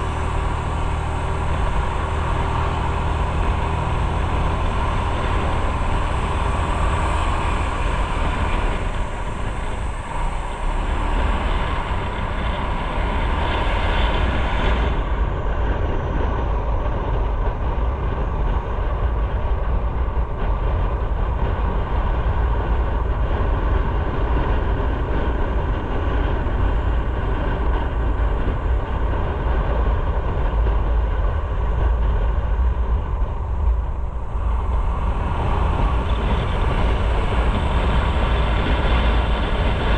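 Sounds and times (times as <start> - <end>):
motorcycle engine: 0.0 - 15.0
wind rush over microphone: 0.0 - 39.9.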